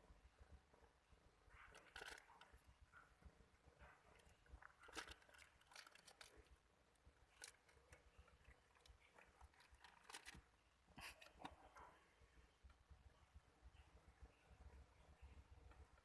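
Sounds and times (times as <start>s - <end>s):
small clicks and rustles: 1.5s - 12.0s.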